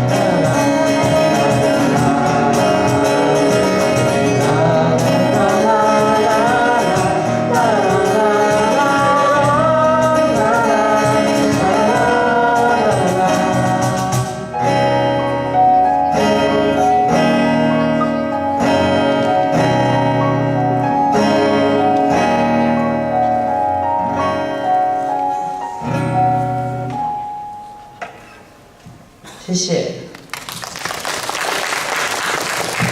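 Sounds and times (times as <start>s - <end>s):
person singing: 0.0s - 20.2s
strummed guitar chords: 0.0s - 28.7s
keyboard: 0.0s - 29.2s.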